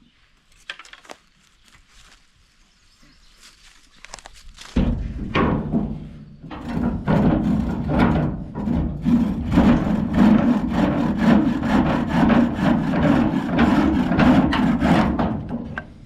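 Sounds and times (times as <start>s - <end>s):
hand saw cutting wood: 6.5s - 15.8s.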